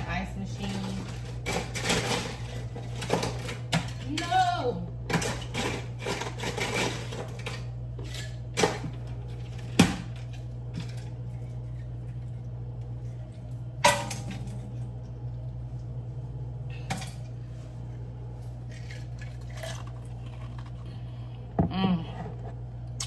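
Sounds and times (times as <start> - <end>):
kitchen items clattering: 0.0 - 4.5, 5.1 - 12.2, 13.8 - 14.8
low appliance hum: 0.0 - 23.0.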